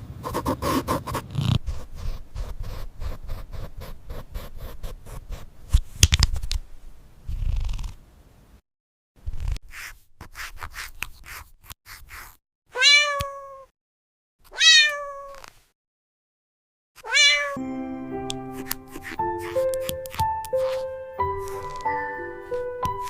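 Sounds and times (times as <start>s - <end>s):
cat meowing: 12.7s - 13.7s, 14.5s - 15.4s, 17.0s - 17.6s
music with sustained notes: 17.6s - 23.0s.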